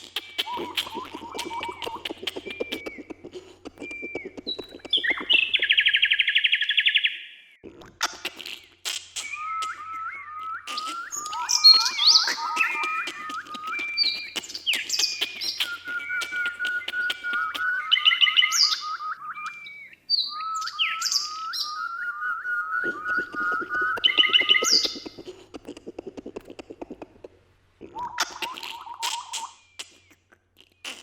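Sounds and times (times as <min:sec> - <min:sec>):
fast low pulsing: 0:00.0 - 0:05.8, 0:22.8 - 0:28.5
bird chirps and trills: 0:00.0 - 0:07.3, 0:08.0 - 0:31.0
rising whistled bird notes: 0:00.0 - 0:07.4, 0:08.4 - 0:25.4.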